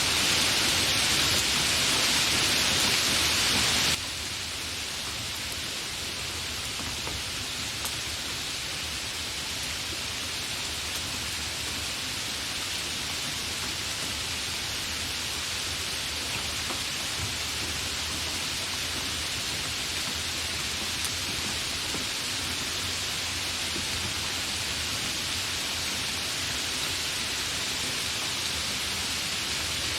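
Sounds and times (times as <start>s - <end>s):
rain hiss: 0.0s - 29.9s
raindrops ticking: 4.9s - 8.3s, 13.0s - 27.0s.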